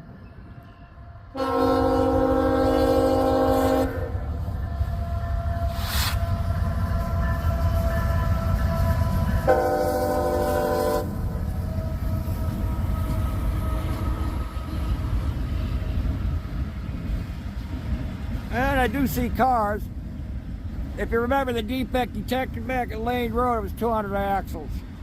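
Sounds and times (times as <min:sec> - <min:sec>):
train low rumble: 0:00.0 - 0:25.0
locomotive air horn chord: 0:01.3 - 0:04.3, 0:05.4 - 0:14.3.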